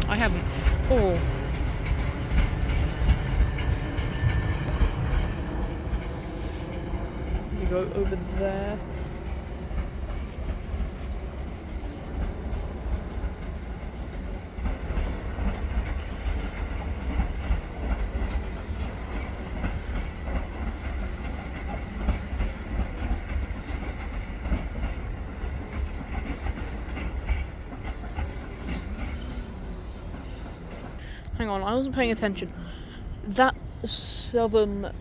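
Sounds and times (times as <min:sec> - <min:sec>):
train wheels clicking over rail joints: 0:00.0 - 0:31.8
train low rumble: 0:00.0 - 0:35.0.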